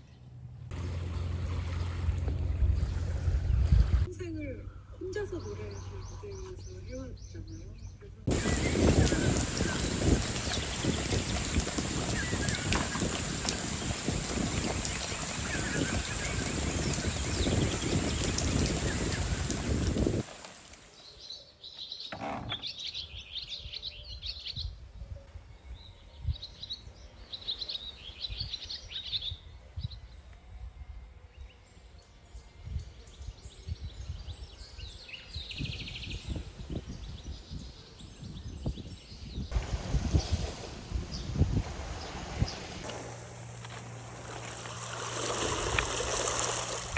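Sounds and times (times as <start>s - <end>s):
faint low rumble: 0.3s - 4.1s
small birds chirping: 2.5s - 20.2s, 32.7s - 40.4s.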